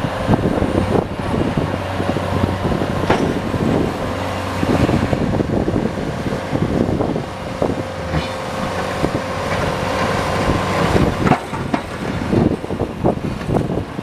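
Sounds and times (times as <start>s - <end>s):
vehicle engine running: 0.0s - 14.0s
knocks and rattles: 3.0s - 3.5s, 10.8s - 13.7s.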